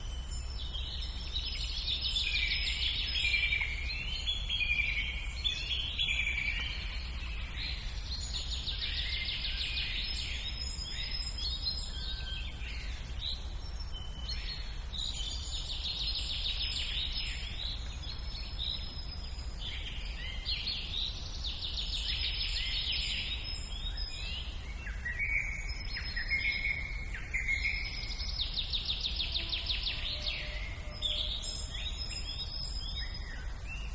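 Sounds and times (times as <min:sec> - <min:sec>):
birds chirping and singing: 0:00.0 - 0:33.9.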